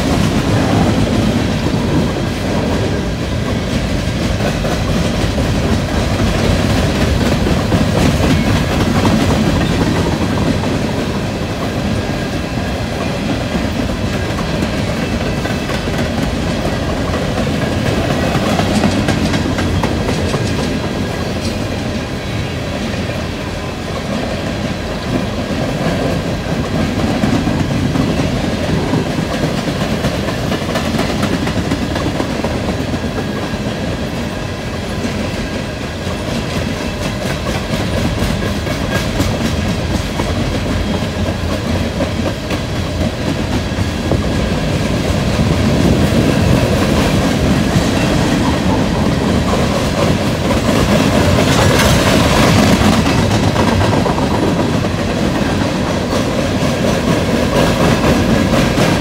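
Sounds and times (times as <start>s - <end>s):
wheels clicking over rail joints: 0.0s - 21.9s, 34.9s - 59.0s
freight train rumbling and rattling: 0.0s - 59.0s.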